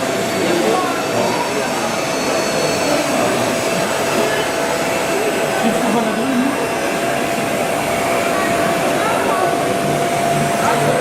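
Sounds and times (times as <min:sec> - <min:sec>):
constant high whine: 0:00.0 - 0:11.0
exhibition hall din: 0:00.0 - 0:11.0
faint voices: 0:00.0 - 0:11.0.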